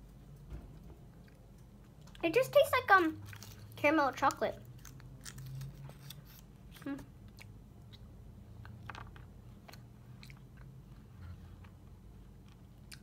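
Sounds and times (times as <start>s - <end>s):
chocolate shell chewing crunches: 3.2s - 13.0s.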